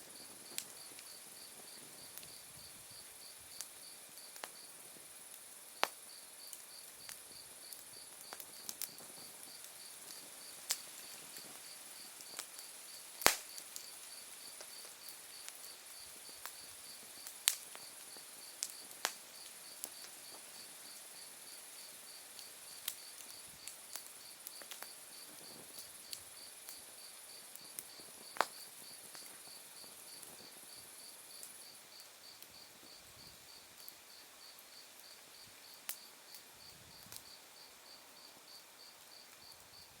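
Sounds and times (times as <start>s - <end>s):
fire embers popping and crackling: 0.0s - 40.0s.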